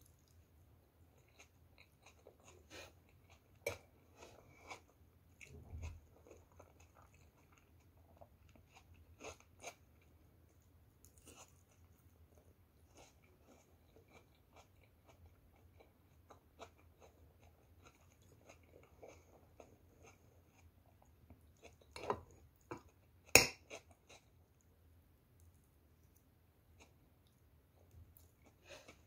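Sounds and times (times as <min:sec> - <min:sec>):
close chewing with wet clicks: 0:05.3 - 0:10.2.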